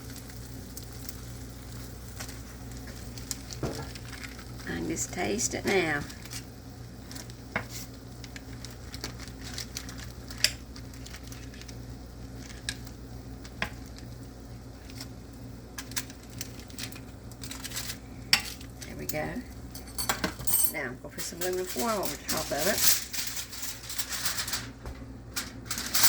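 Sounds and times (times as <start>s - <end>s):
faint sizzling: 0.0s - 19.9s, 20.8s - 26.0s
steady low hum: 0.0s - 26.0s
utensil scraping baking dish: 21.2s - 24.6s.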